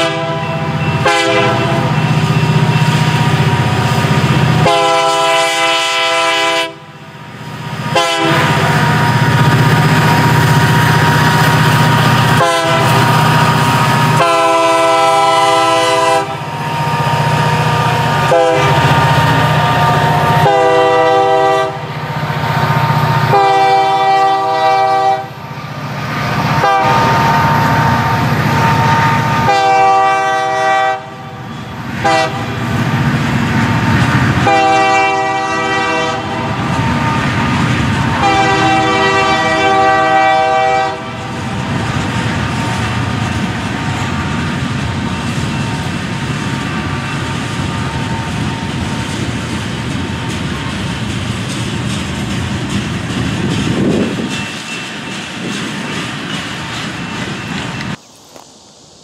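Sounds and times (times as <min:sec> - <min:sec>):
locomotive horn blasts: 0:00.0 - 0:02.2, 0:04.6 - 0:06.9, 0:07.8 - 0:09.6, 0:12.2 - 0:13.3, 0:14.0 - 0:22.0, 0:22.7 - 0:25.4, 0:26.4 - 0:32.6, 0:34.4 - 0:37.4, 0:38.1 - 0:41.4
diesel locomotive engines rumbling: 0:00.0 - 0:59.0
train wheels clicking over rail joints: 0:31.4 - 0:58.9.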